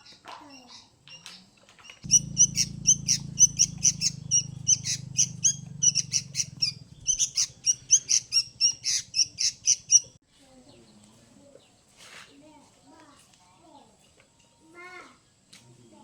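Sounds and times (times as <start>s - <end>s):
birds chirping and squawking: 0.0s - 10.2s
low steady hum: 2.0s - 10.0s.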